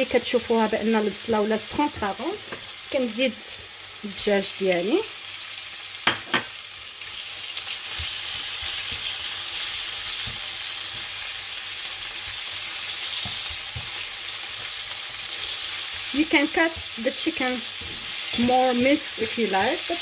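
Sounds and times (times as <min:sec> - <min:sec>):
food sizzling in a skillet: 0:00.0 - 0:20.0
wooden spatula stirring: 0:12.8 - 0:19.6.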